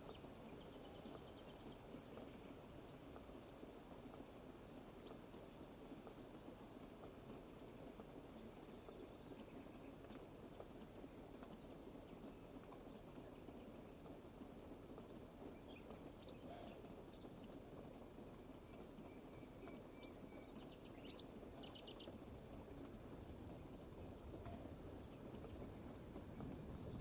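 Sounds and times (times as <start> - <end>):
soft rain patter: 0.0 - 27.0
faint bird chirps: 15.0 - 17.6, 18.6 - 22.3.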